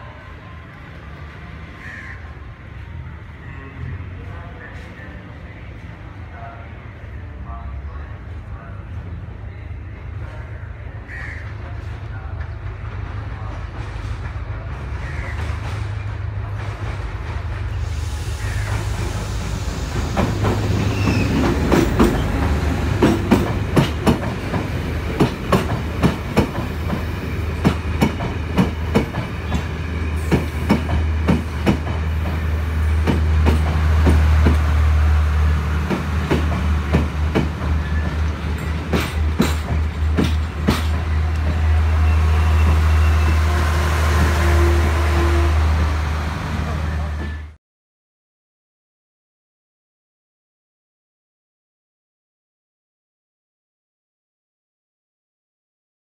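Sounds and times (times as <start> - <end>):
train rumble: 0.0 - 47.6
wheels clickety-clack on rail joints: 11.5 - 17.8, 20.0 - 34.8, 35.8 - 43.3.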